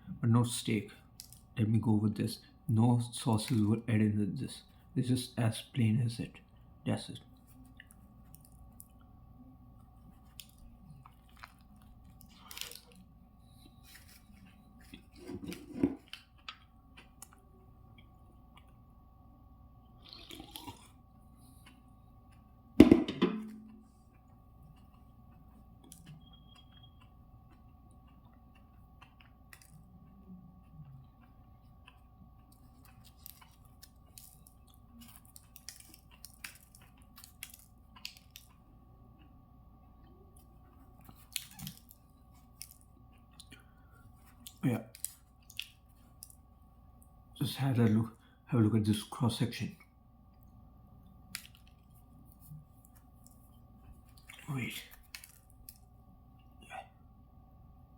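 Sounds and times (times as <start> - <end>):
person chewing sandwich: 7.3 - 19.0, 19.8 - 22.6, 23.6 - 47.2, 50.4 - 57.1.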